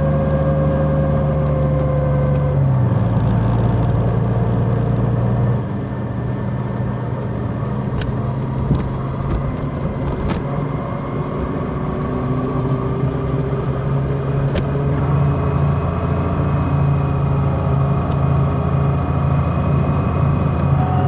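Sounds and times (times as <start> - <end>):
motorcycle engine running: 0.1 - 21.0.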